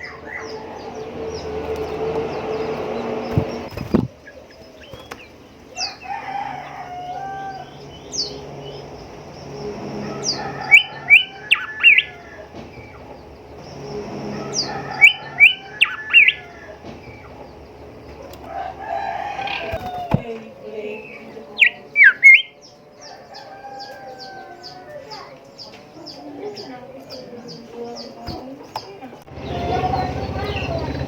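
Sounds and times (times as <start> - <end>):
bird whistling song: 9.6 - 17.4, 21.6 - 23.2.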